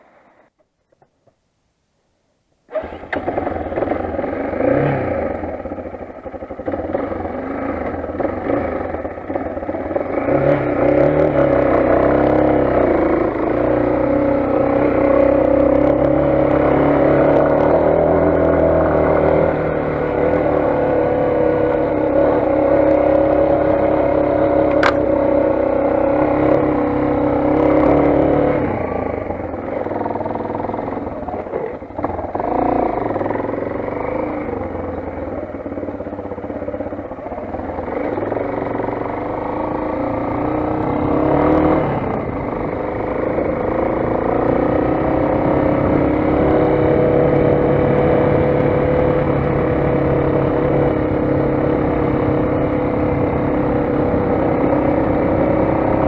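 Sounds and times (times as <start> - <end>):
motorcycle engine running: 2.7 - 56.0
sharp click: 24.7 - 25.1.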